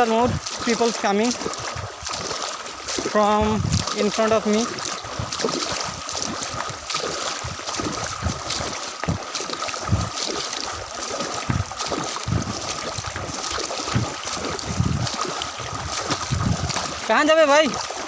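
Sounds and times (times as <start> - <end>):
water sloshing around wading legs: 0.0 - 18.0
wind buffeting microphone: 0.0 - 18.0.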